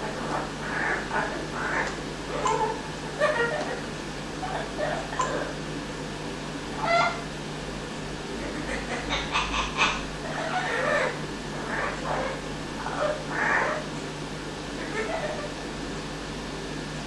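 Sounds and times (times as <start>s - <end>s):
parrot squawking calls: 0.0s - 5.6s, 6.7s - 7.3s, 8.4s - 13.9s, 14.8s - 15.5s.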